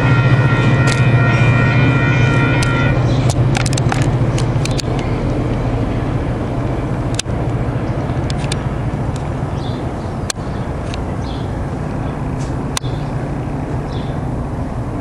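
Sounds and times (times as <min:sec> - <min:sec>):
train rumbling past: 0:00.0 - 0:15.0
sharp clicks: 0:00.8 - 0:01.0, 0:02.6 - 0:05.6, 0:07.1 - 0:07.6, 0:08.2 - 0:09.3.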